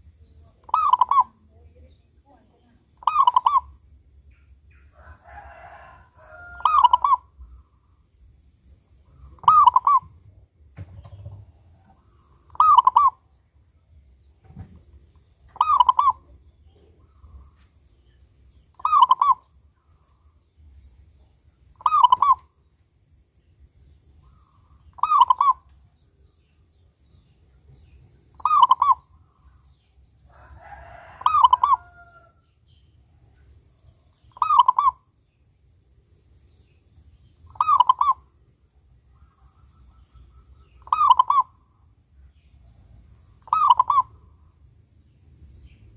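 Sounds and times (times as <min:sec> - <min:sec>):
dove cooing: 0:00.6 - 0:01.4, 0:05.3 - 0:07.6, 0:09.1 - 0:13.2, 0:15.5 - 0:17.5, 0:18.8 - 0:19.4, 0:21.8 - 0:22.5, 0:24.3 - 0:25.7, 0:28.4 - 0:29.0, 0:30.9 - 0:32.2, 0:34.3 - 0:35.0, 0:37.5 - 0:38.3, 0:39.2 - 0:41.6, 0:43.4 - 0:44.3
second bird calling: 0:21.8 - 0:22.5, 0:24.3 - 0:25.7, 0:37.5 - 0:38.3, 0:39.3 - 0:41.6, 0:43.4 - 0:44.2.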